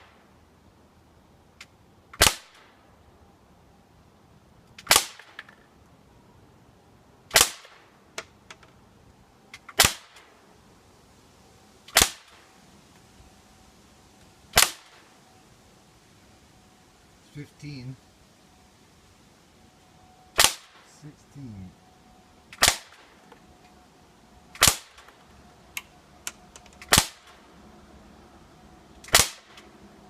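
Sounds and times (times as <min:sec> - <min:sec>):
air pistol shot pops: 0:07.3 - 0:07.8, 0:20.4 - 0:20.8, 0:29.0 - 0:29.7.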